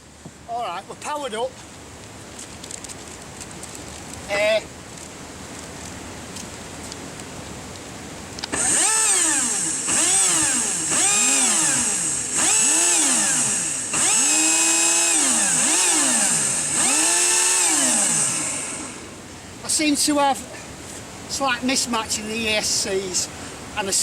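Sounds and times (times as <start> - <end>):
electric motors revving with whine: 8.5 - 19.2.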